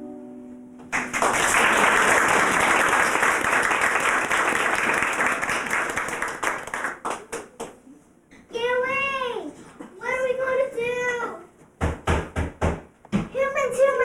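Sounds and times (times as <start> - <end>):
audience applauding: 0.9 - 7.8.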